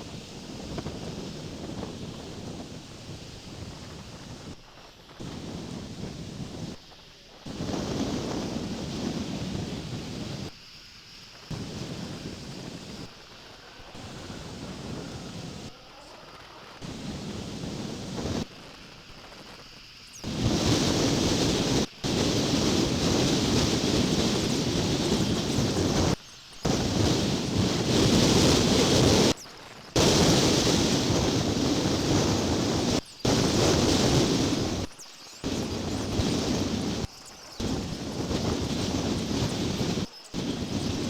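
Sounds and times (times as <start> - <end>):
wind buffeting microphone: 0.0 - 6.8, 7.5 - 10.5, 11.5 - 15.8, 16.4 - 19.6, 20.2 - 41.0.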